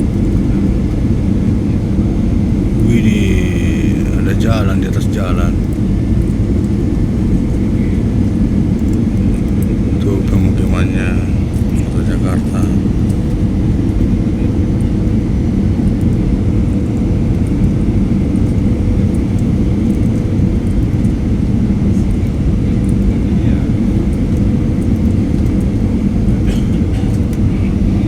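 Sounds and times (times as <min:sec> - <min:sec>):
aircraft engine rumble: 0:00.0 - 0:28.0.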